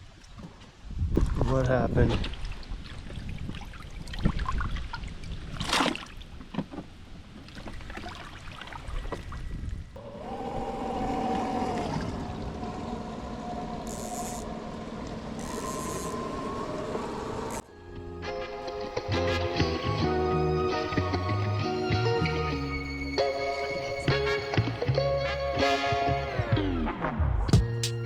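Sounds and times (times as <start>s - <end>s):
water: 0.0s - 17.6s
wind: 0.0s - 28.0s
background music: 17.6s - 28.0s.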